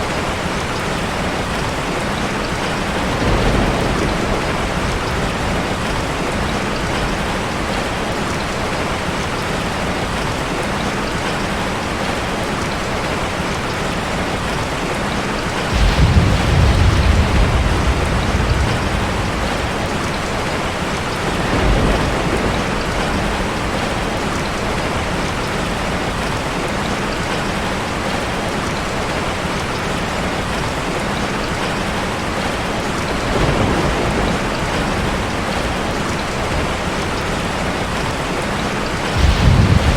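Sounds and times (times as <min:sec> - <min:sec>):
rushing falling water: 0:00.0 - 0:39.9
deep low rumble: 0:39.2 - 0:39.9.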